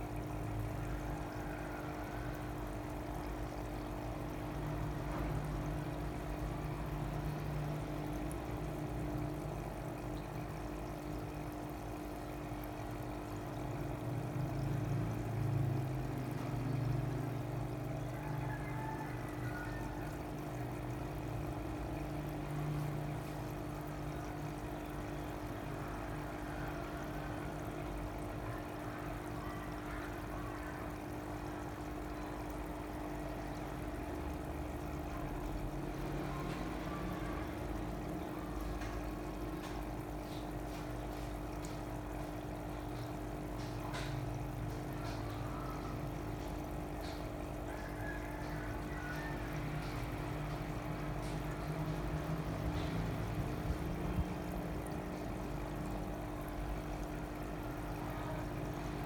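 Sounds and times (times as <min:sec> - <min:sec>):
steady hum: 0:00.0 - 0:18.2
water pouring and trickling: 0:00.0 - 0:59.0.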